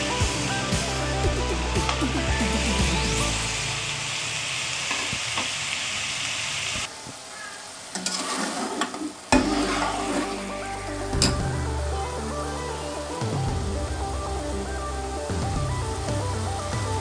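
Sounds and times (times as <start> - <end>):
meat sizzling in a pot: 0.0 - 17.0
metal spoon scraping in pot: 8.0 - 10.5.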